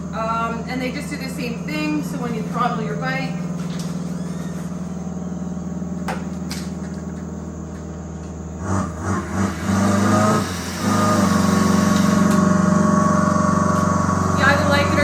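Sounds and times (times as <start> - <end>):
simulated motorbike engine revving: 8.4 - 15.0.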